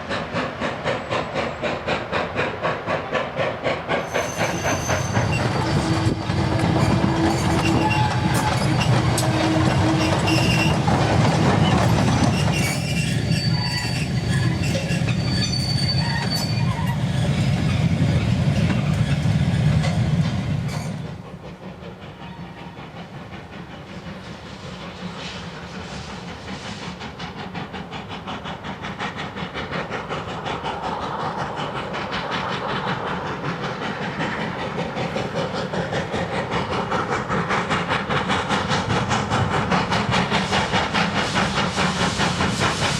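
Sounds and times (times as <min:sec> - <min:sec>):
steam train running: 0:00.0 - 0:42.9
wheels clicking over rail joints: 0:04.6 - 0:13.0.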